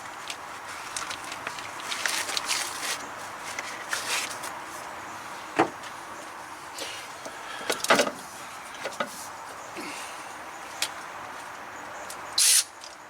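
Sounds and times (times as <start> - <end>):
steady hiss: 12.4 - 12.9.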